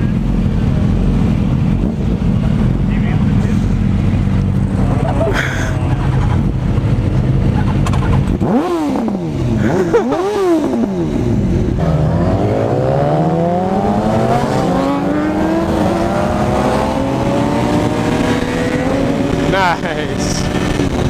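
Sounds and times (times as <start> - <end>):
motorcycle engine revving: 5.8 - 21.0.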